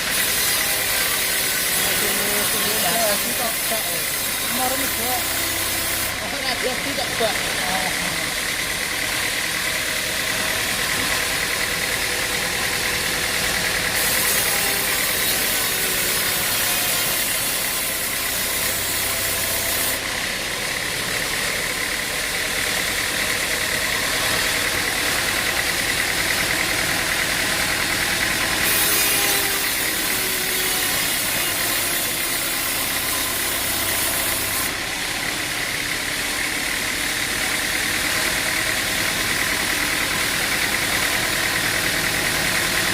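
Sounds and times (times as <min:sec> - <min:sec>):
engine droning with whine: 0:00.0 - 0:42.9.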